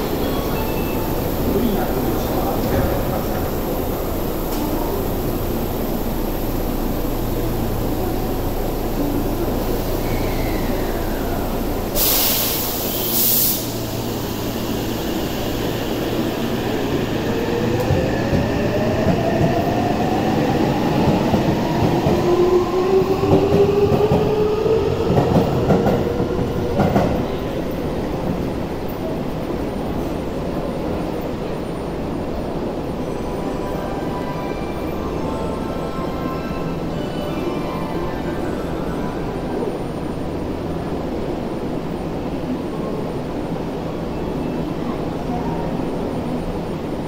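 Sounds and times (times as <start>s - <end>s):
short sharp air hiss: 12.0s - 14.7s.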